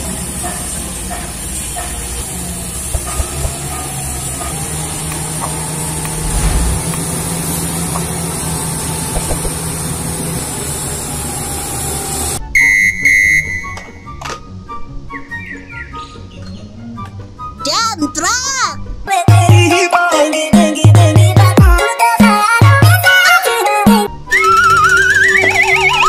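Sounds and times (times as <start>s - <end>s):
bulldozer diesel engine running: 0.0s - 12.4s.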